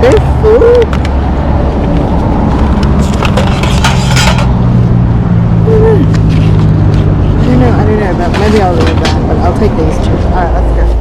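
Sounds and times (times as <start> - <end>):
engine running with low hum: 0.0 - 11.0
clicks and rustling scrape: 1.8 - 4.7, 6.1 - 9.4.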